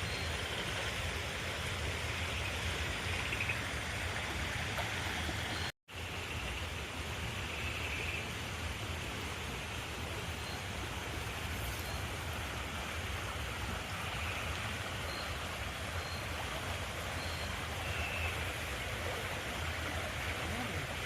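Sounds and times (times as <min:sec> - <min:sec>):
river water rushing: 0:08.5 - 0:21.0.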